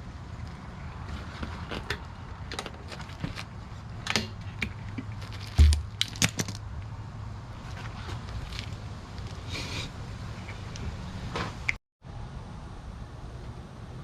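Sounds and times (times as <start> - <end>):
dull thump: 5.5 - 6.0.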